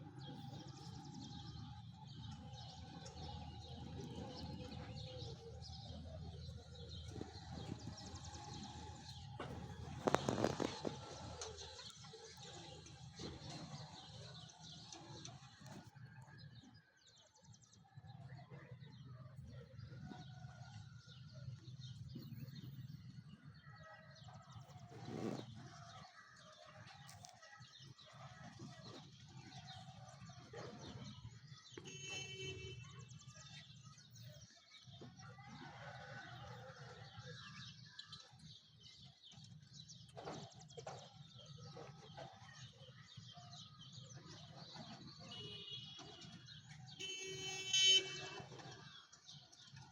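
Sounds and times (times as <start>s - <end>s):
birds chirping: 0.2s - 15.9s, 42.6s - 49.8s.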